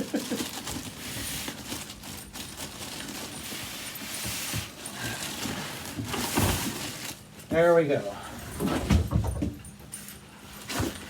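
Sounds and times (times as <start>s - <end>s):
packaging rustling and scraping: 0.0s - 7.4s, 10.4s - 11.0s.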